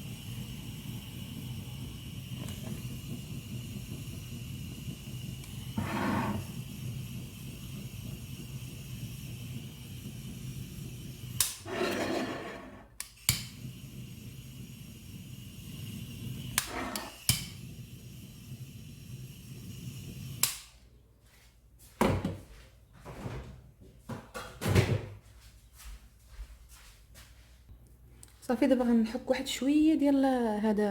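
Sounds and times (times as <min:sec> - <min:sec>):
blowtorch flame hissing: 0:00.0 - 0:20.8.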